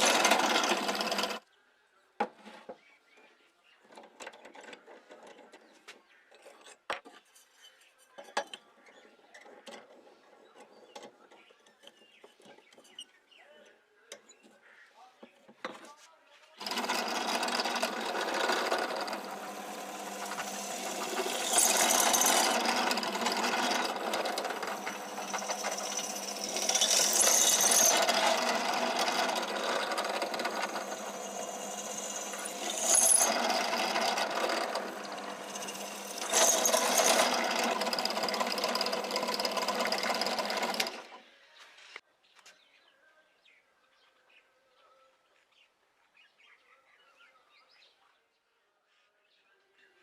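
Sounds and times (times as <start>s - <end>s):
power tool working metal: 0.0s - 1.4s, 16.6s - 41.2s.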